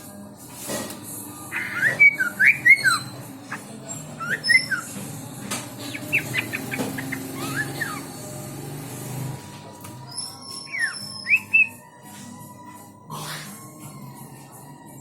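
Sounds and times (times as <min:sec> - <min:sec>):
songbird singing: 0:01.5 - 0:08.6, 0:10.1 - 0:11.9.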